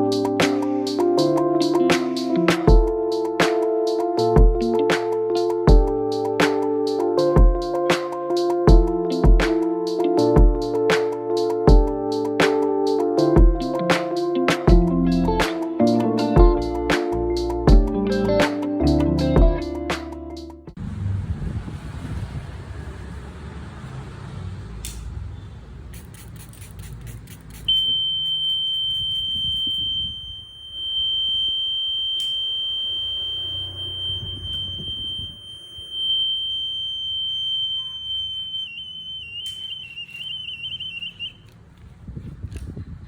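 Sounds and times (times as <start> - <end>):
buzzer high-pitched alarm beep: 27.7 - 41.4.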